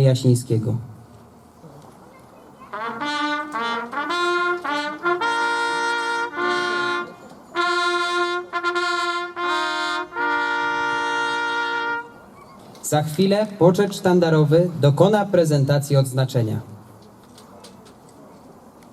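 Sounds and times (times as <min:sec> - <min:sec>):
brass fanfare: 0:02.7 - 0:12.3.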